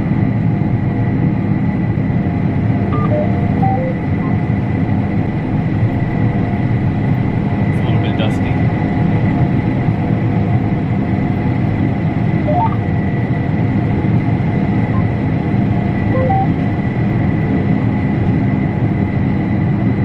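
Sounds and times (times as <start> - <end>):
combine harvester drone: 0.0 - 20.0
short electronic beeps: 2.9 - 4.4, 12.4 - 12.8, 16.1 - 16.6.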